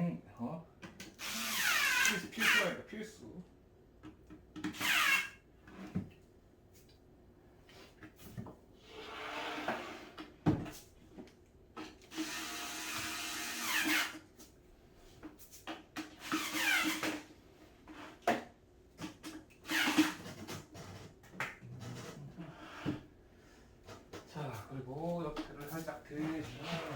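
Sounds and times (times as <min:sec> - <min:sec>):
power drill whirring: 0:01.2 - 0:02.7, 0:12.1 - 0:14.2.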